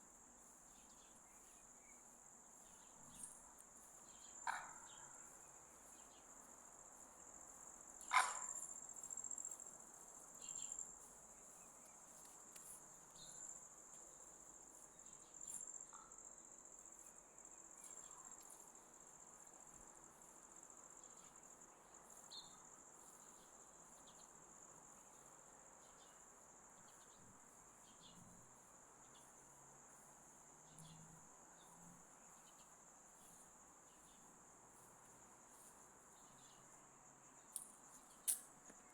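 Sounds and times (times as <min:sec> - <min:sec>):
high-pitched insect trill: 0:20.3 - 0:38.9
sharp click: 0:37.6 - 0:38.5.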